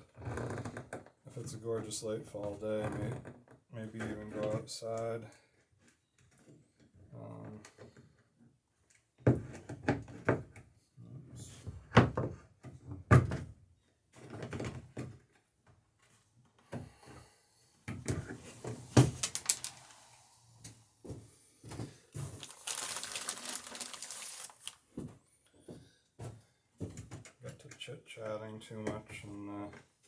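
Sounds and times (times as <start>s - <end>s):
steady hissing noise: 18.1s - 24.8s.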